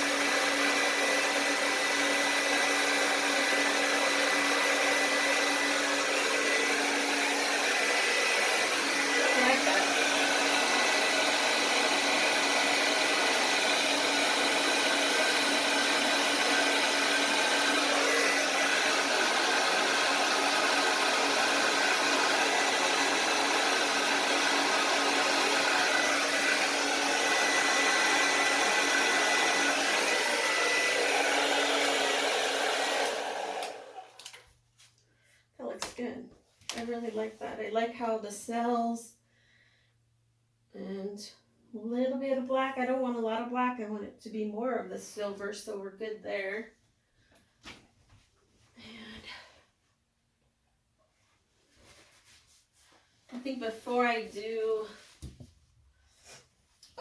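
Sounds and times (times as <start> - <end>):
hair dryer running: 0.0 - 34.4, 53.3 - 55.4.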